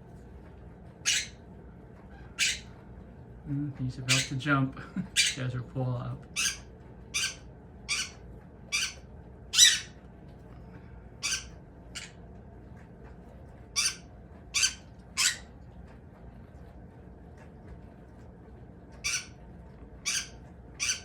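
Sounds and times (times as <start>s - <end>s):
pet bird squawking: 1.0s - 1.4s, 2.2s - 2.8s, 4.1s - 4.4s, 5.1s - 5.4s, 6.3s - 10.0s, 11.2s - 12.2s, 13.7s - 15.5s, 19.0s - 19.4s, 20.0s - 21.0s.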